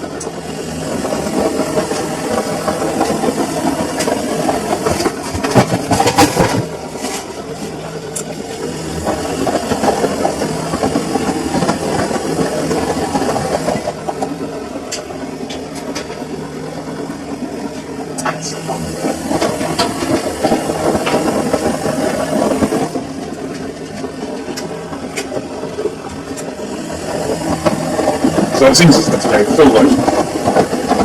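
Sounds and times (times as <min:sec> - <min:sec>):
washing machine clattering: 0:18.2 - 0:31.0.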